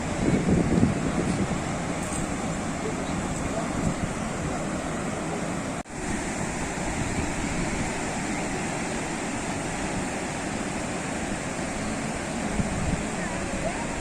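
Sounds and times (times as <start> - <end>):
sea waves washing on shore: 0.0 - 14.0.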